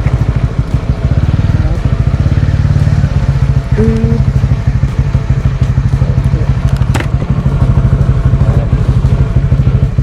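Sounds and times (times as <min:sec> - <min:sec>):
motorcycle engine running: 0:00.0 - 0:10.0
brief steady tone: 0:03.7 - 0:04.3.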